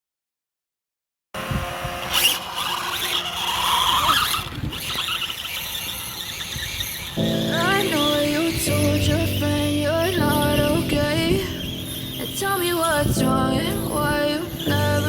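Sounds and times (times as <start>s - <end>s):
electric motor whining: 1.4s - 15.0s
background music: 7.4s - 15.0s.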